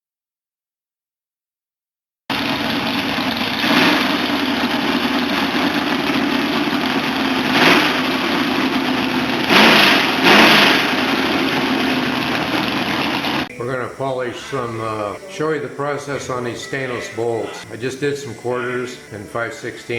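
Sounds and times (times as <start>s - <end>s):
electric grinder running: 2.3s - 13.5s
grinding bursts: 2.3s - 13.5s.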